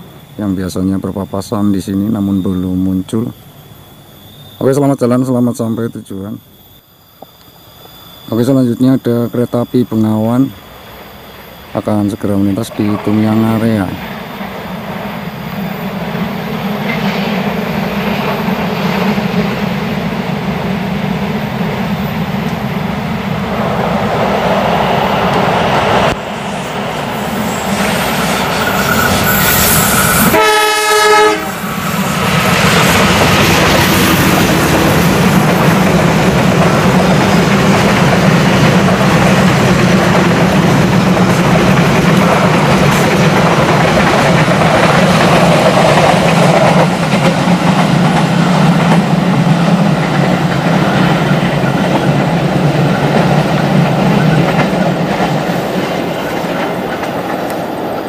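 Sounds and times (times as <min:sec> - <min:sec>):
diesel locomotive engine running: 0:00.0 - 0:58.0
wheels rumbling on rails: 0:00.0 - 0:58.0
train horn blast: 0:27.6 - 0:31.7.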